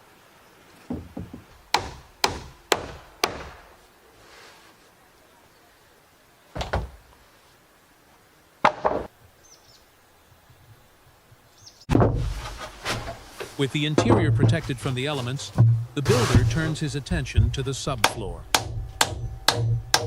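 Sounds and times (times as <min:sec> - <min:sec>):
hammer driving nails into wood: 0:01.7 - 0:03.6, 0:18.0 - 0:20.0.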